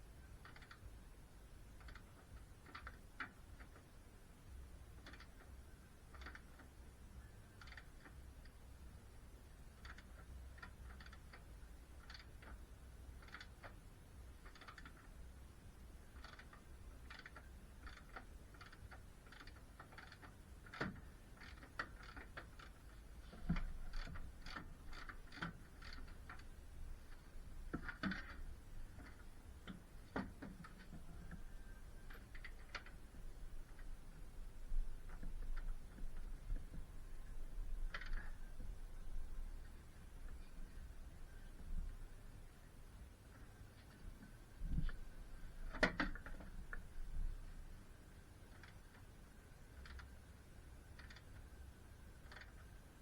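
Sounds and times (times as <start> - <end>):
light clicks and taps: 16.1 - 38.8.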